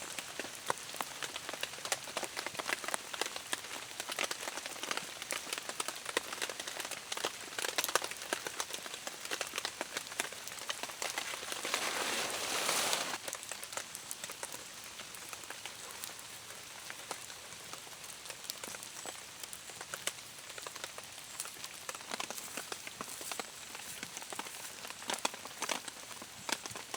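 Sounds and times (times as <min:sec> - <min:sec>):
rain falling on a surface: 0:00.0 - 0:26.9.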